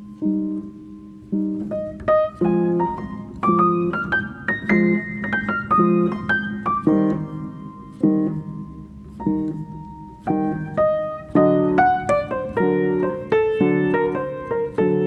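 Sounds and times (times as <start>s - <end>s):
solo piano: 0.0s - 15.0s.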